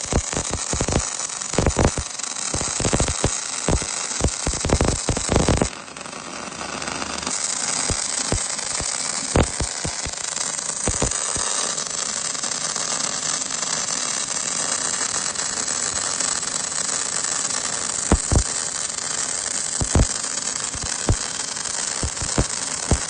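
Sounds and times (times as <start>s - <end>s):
welding arc crackling and popping: 0.0s - 5.8s, 7.2s - 12.4s, 14.8s - 23.0s.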